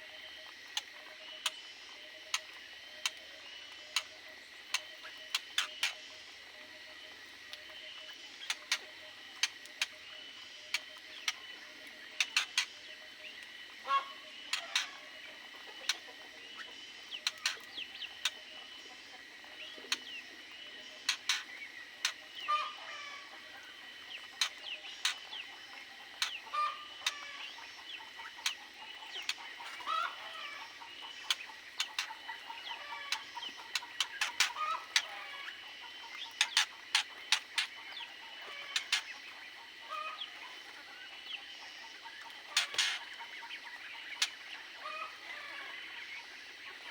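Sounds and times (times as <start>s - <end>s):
aviary birds calling: 0.0s - 46.9s.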